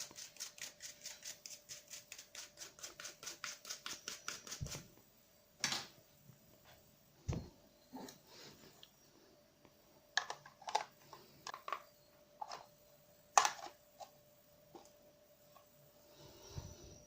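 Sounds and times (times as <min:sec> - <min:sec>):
faint steady tone: 0:04.0 - 0:17.0.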